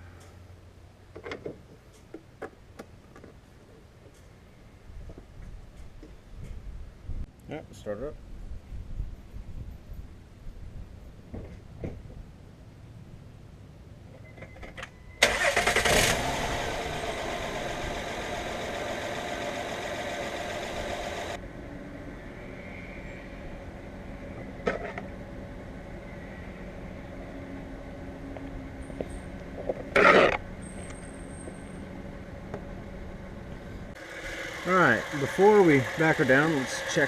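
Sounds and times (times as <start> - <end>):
car engine starting and idling: 15.2 - 21.5.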